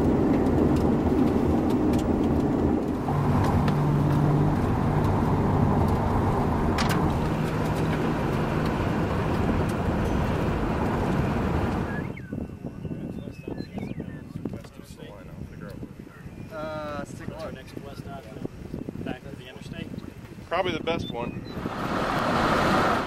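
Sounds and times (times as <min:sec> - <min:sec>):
low hum: 0:00.0 - 0:12.2
road and engine noise in car: 0:00.0 - 0:12.2, 0:21.6 - 0:23.0.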